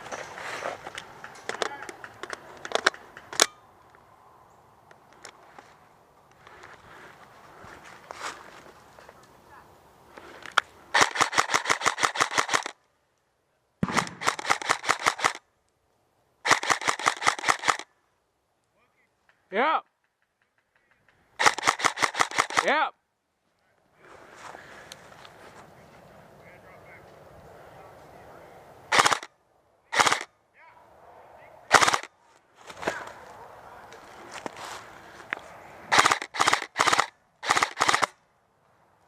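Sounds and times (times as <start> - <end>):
airsoft rifle full-auto bursts: 10.9 - 12.8, 13.8 - 15.4, 16.4 - 17.9, 21.4 - 22.7, 28.9 - 29.3, 29.9 - 30.3, 31.7 - 32.1, 35.9 - 38.2.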